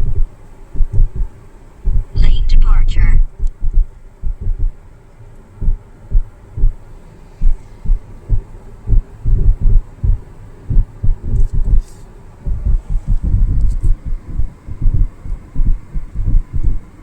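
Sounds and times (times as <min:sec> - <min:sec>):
wind buffeting phone microphone: 0:07.9 - 0:17.0.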